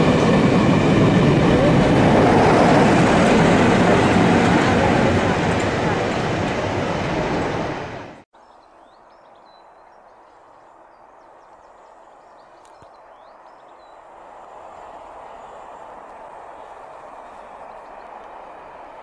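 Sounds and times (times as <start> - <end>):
diesel train passing close: 0.0 - 8.2, 13.3 - 19.0
small birds chirping: 8.4 - 14.3.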